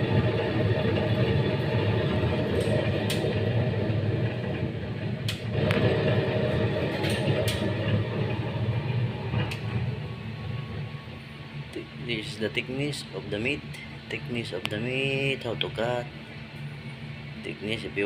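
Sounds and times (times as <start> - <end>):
meat slicer humming: 0.0 - 18.0.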